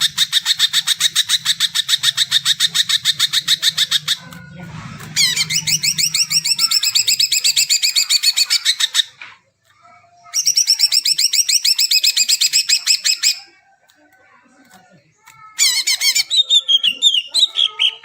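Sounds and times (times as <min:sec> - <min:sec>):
bird singing rising chirps: 0:03.0 - 0:09.0.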